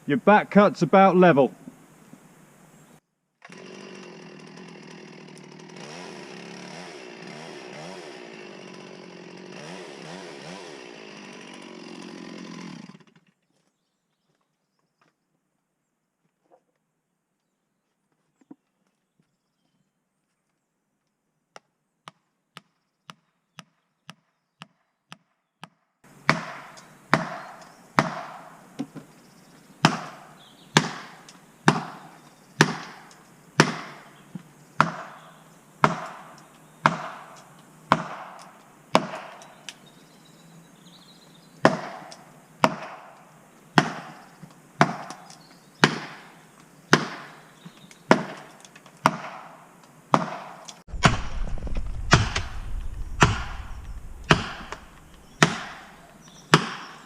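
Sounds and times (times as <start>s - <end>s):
blows driving a felling wedge: 50.8s - 56.8s.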